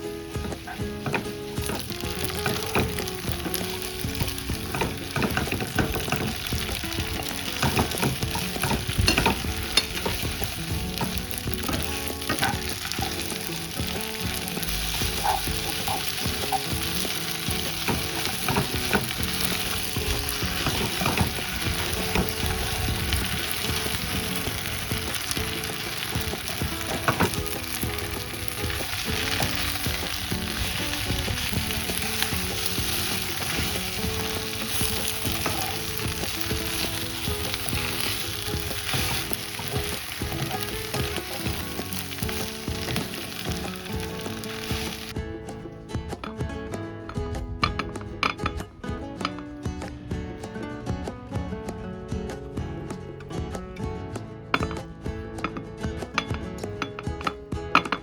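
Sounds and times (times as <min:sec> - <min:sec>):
noodles sizzling in a pan: 0:00.0 - 0:45.2
spatula scraping and tapping pan: 0:00.0 - 0:45.2, 0:54.5 - 0:58.0.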